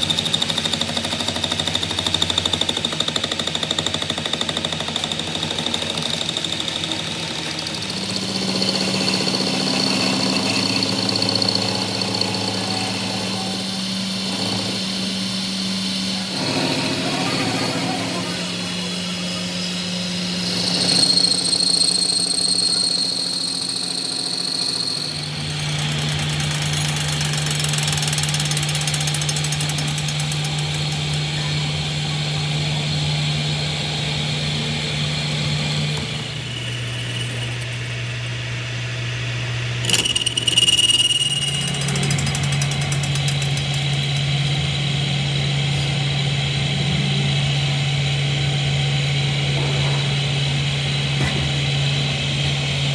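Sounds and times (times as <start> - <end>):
machine humming: 0.0 - 52.9
high-pitched whine: 7.6 - 25.7, 31.2 - 38.7, 39.4 - 43.0
short rattle: 39.8 - 44.6.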